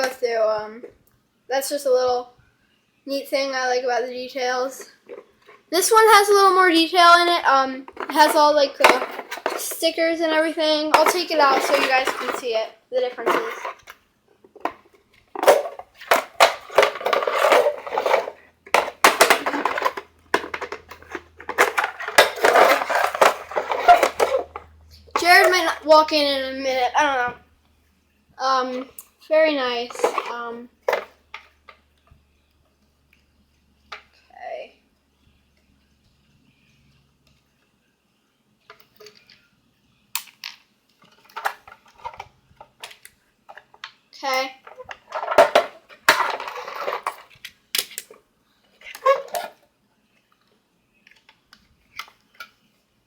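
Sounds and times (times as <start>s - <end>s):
plastic parts clicking and knocking: 7.9s - 9.8s, 10.9s - 25.8s, 29.9s - 31.8s, 40.2s - 44.0s, 44.6s - 48.2s.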